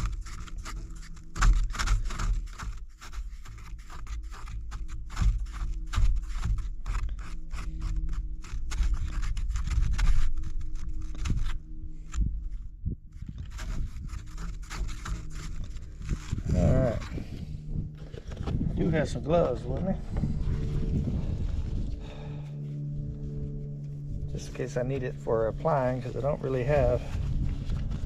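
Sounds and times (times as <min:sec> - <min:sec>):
stick scraping and stirring epoxy: 0:00.0 - 0:11.6, 0:13.3 - 0:20.2, 0:24.2 - 0:27.2
low thumps: 0:12.0 - 0:25.7.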